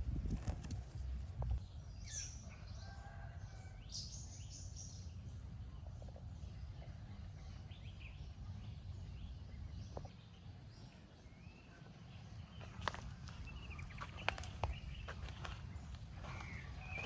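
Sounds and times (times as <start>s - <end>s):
steady low rumble: 0.0s - 1.9s
small birds chirping: 1.6s - 17.0s.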